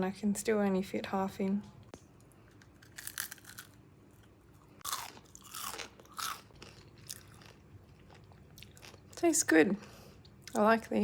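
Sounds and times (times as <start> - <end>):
person crunching potato chip: 2.5 - 9.1.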